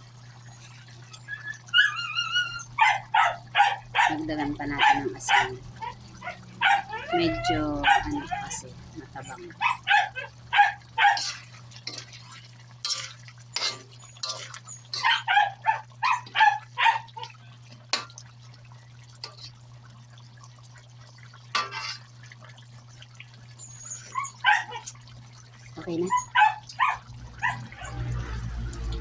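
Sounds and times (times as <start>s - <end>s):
small dog yapping: 1.3s - 4.2s, 4.8s - 12.1s, 13.6s - 17.4s, 23.8s - 25.0s, 25.8s - 28.0s
utensil clattering: 11.0s - 15.5s.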